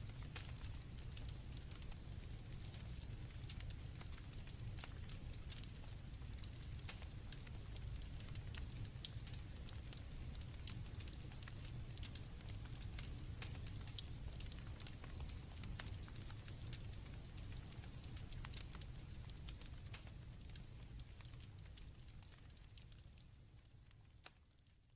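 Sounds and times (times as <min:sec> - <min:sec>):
crickets chirping: 0:00.0 - 0:24.8
campfire crackling and popping: 0:00.0 - 0:24.9.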